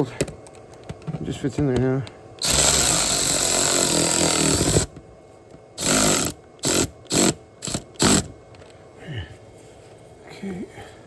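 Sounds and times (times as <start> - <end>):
power tool driving a bolt: 2.4 - 5.0, 5.8 - 8.4.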